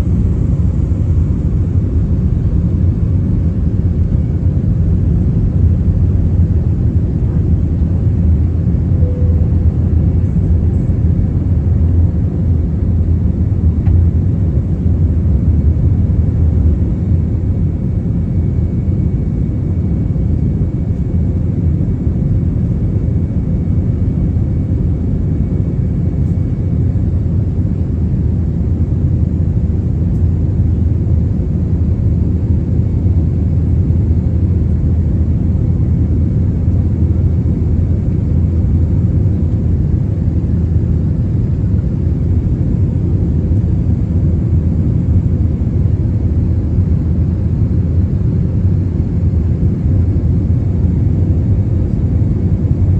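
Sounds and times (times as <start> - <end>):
airplane engines and airflow rumble: 0.0 - 52.9.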